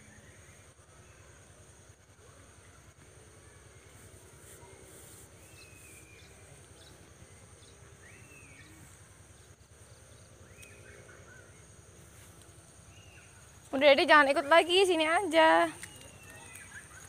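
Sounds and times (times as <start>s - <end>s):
faint whistled bird calls: 15.7s - 17.0s.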